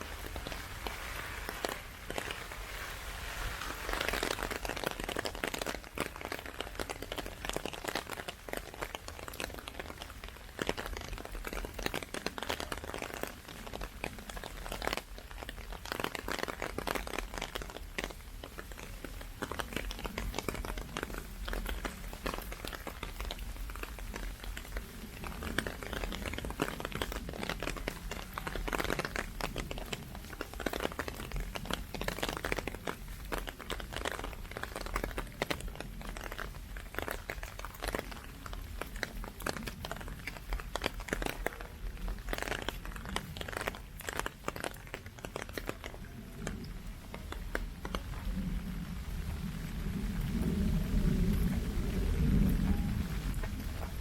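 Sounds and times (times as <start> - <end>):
heavy rain drops pattering: 0.0 - 54.0
steady low rumble: 46.0 - 54.0.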